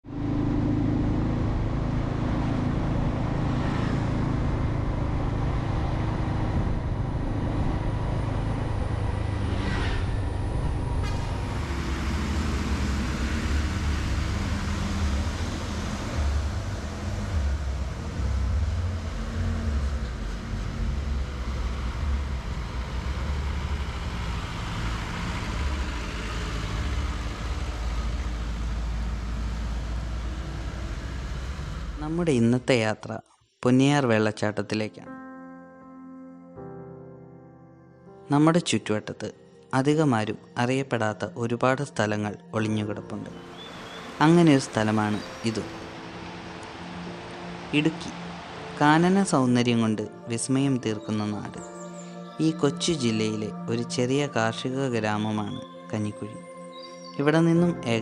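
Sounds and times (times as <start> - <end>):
vehicle engine low rumble: 0.0 - 32.7, 43.2 - 50.3.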